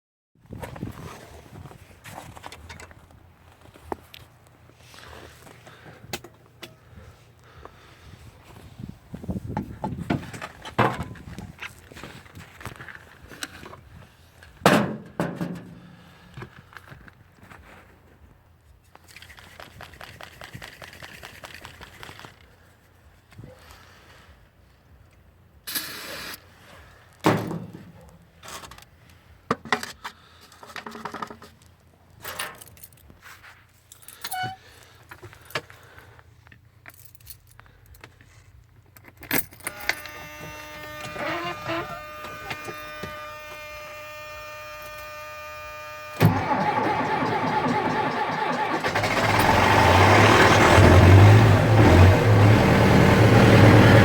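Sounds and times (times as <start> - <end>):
clicks knocks and jangling: 32.2 - 33.2, 36.8 - 40.1
diesel engine starting and running: 39.6 - 54.0.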